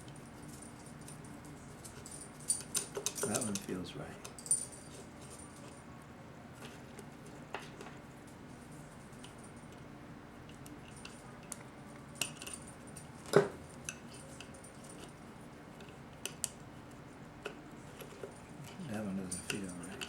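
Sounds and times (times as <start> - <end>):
small metal parts clicking: 1.8 - 4.7, 17.4 - 20.0.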